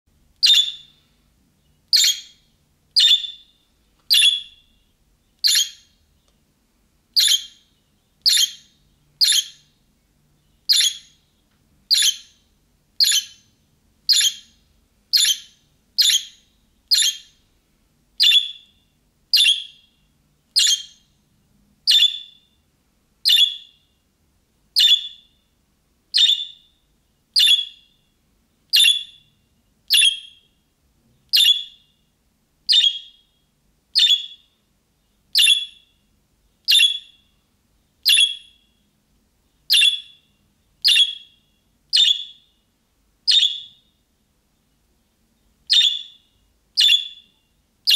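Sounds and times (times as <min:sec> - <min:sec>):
budgerigar short sharp calls: 0:00.4 - 0:00.9, 0:01.9 - 0:02.4, 0:03.0 - 0:03.4, 0:05.4 - 0:05.8, 0:08.3 - 0:09.6, 0:10.7 - 0:11.1, 0:14.1 - 0:14.4, 0:15.2 - 0:17.3, 0:32.7 - 0:33.2.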